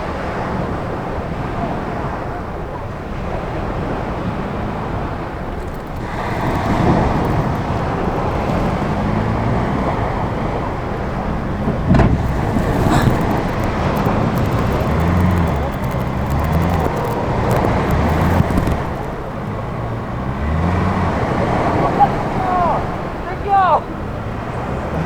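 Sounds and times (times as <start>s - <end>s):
small car engine pulling under load: 4.0s - 23.2s.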